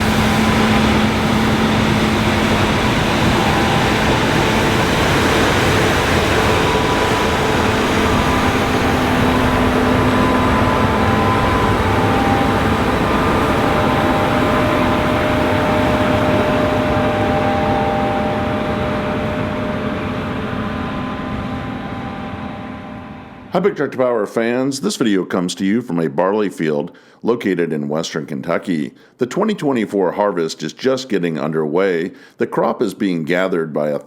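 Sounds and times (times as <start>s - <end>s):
combine harvester drone: 0.0s - 23.6s
faint hum tones: 0.0s - 24.6s.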